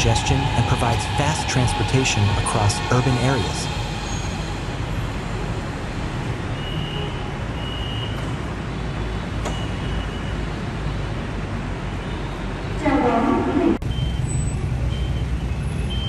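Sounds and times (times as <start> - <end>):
moving vehicle rumble and hiss: 0.0 - 6.5.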